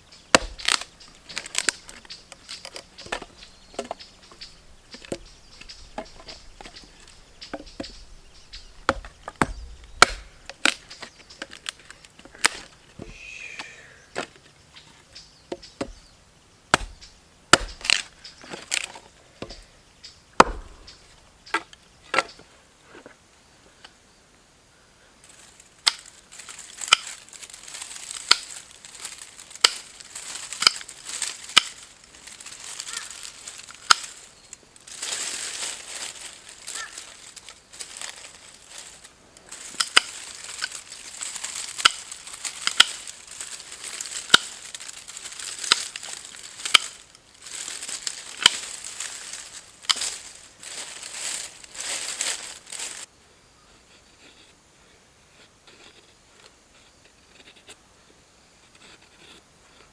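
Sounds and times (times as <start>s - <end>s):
wood being chopped: 0.3s - 2.0s, 7.4s - 11.7s, 15.5s - 16.1s, 16.7s - 19.7s, 20.4s - 22.3s, 41.6s - 43.1s, 44.2s - 44.8s.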